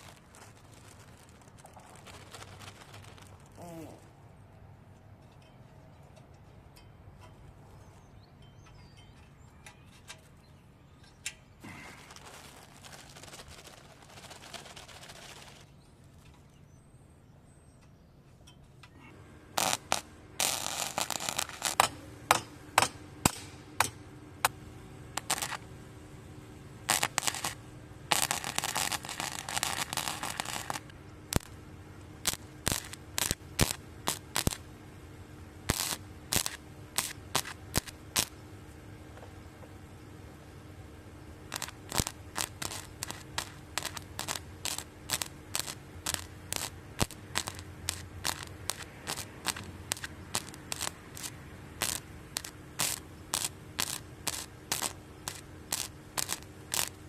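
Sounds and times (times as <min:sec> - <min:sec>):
welder crackling and popping: 0:00.0 - 0:04.0, 0:11.6 - 0:16.4, 0:19.5 - 0:25.8, 0:26.6 - 0:39.3, 0:41.3 - 0:57.0.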